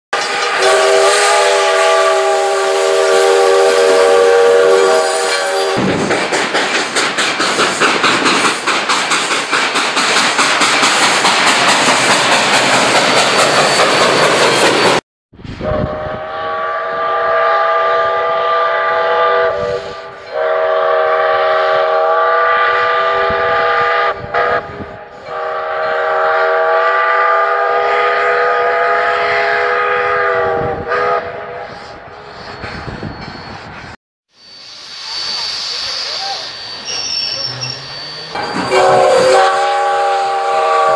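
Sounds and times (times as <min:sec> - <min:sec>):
steam whistle blasts: 0:00.2 - 0:05.9, 0:15.6 - 0:33.1, 0:34.3 - 0:40.9
steam hiss: 0:00.2 - 0:15.0, 0:19.5 - 0:22.2, 0:31.6 - 0:40.9
steam locomotive chuffing: 0:00.2 - 0:15.0, 0:17.0 - 0:40.9.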